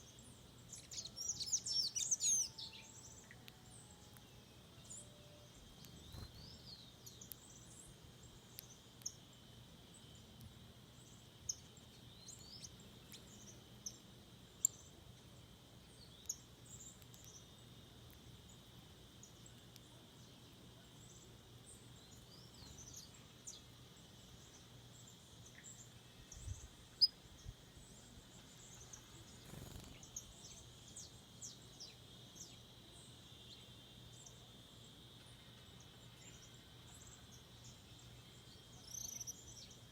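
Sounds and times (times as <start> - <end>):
birds chirping: 0.0 - 9.2, 22.0 - 31.6.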